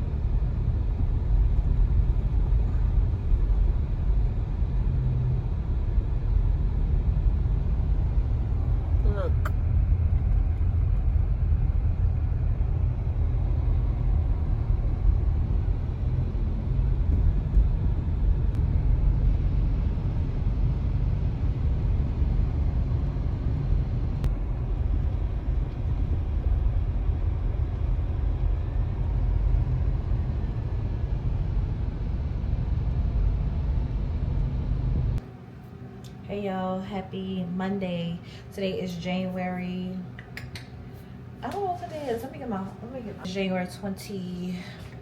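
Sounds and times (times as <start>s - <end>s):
car engine and tyre rumble: 0.0s - 35.2s.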